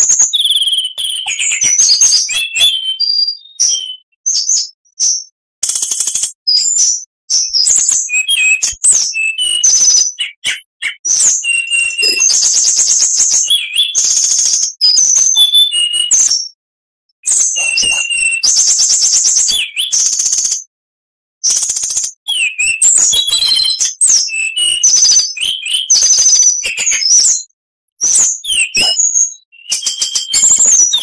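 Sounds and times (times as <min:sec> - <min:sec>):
songbird trilling and whistling: 0:00.0 - 0:16.6, 0:17.2 - 0:20.7, 0:21.4 - 0:31.0.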